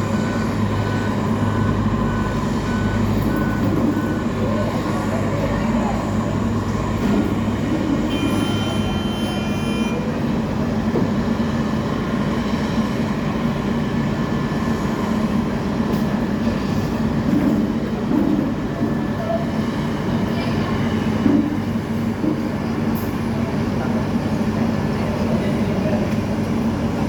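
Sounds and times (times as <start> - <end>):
truck engine drone: 0.0 - 17.0.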